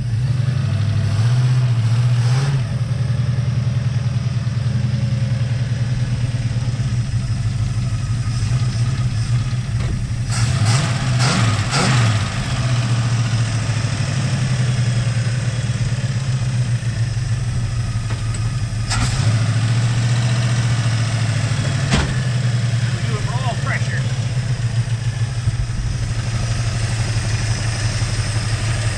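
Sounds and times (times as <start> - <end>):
car engine revving: 0.0 - 28.9.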